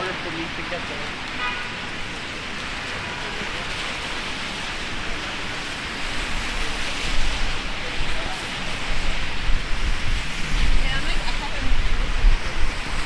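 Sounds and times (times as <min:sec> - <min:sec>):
heavy rain falling: 0:00.0 - 0:13.0
wind buffeting microphone: 0:06.0 - 0:13.0.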